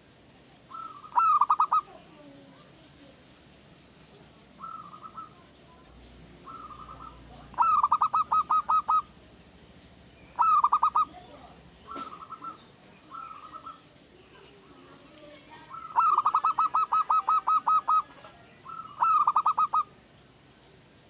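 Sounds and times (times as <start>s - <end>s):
dove cooing song: 0.7s - 2.1s, 4.6s - 5.5s, 6.4s - 9.2s, 10.3s - 13.9s, 15.7s - 20.0s.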